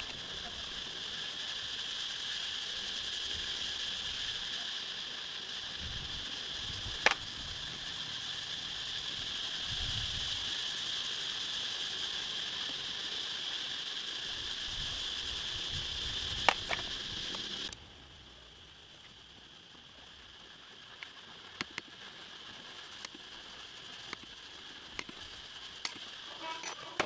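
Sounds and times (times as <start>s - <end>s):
steady high hiss: 0.0s - 27.0s
hand tools clicking on metal: 16.3s - 17.8s, 24.0s - 27.0s.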